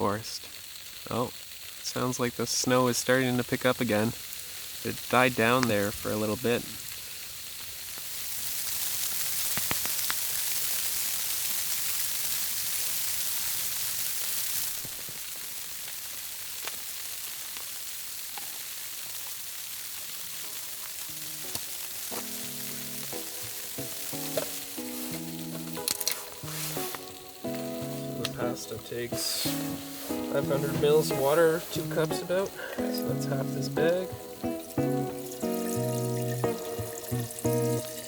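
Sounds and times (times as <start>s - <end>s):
campfire crackling: 0.0s - 38.0s
hiss of falling snow: 0.0s - 38.0s
music with held notes: 20.3s - 38.0s.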